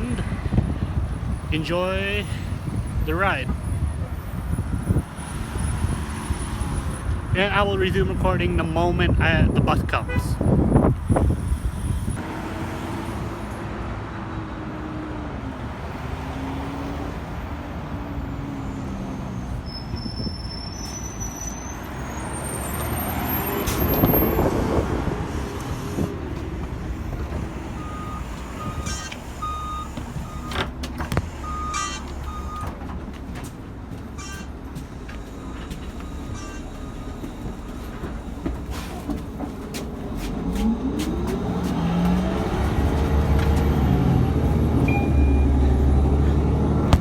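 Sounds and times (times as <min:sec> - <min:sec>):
bus engine rumble: 0:00.0 - 0:47.0
street traffic: 0:00.0 - 0:47.0
short high electronic beeps: 0:44.9 - 0:45.6.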